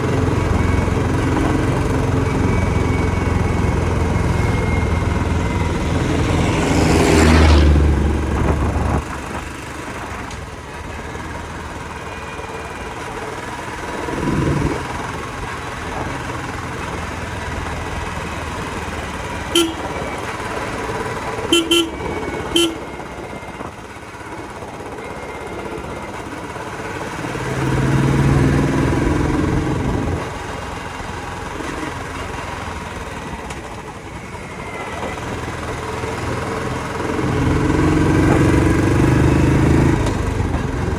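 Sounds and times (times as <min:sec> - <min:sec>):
motorcycle engine and road noise: 0:00.0 - 0:40.9
vehicles rumbling past: 0:00.0 - 0:40.9
vehicle horn toots: 0:19.4 - 0:20.3, 0:21.4 - 0:23.2.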